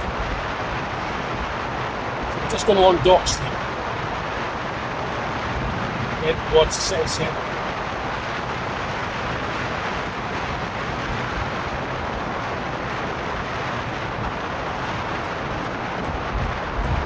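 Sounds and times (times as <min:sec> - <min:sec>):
car road noise: 0:00.0 - 0:17.0.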